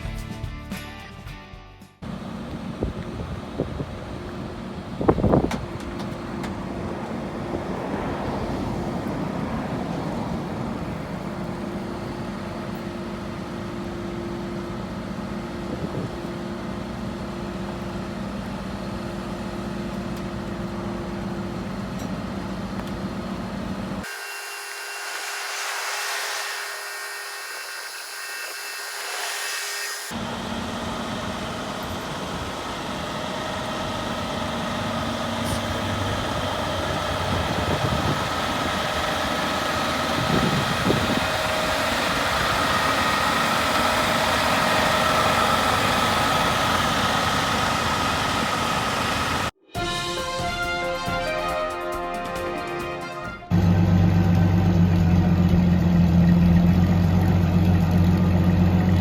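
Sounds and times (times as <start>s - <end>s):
vehicle engine running: 2.0s - 24.1s, 30.1s - 49.6s, 53.5s - 59.0s.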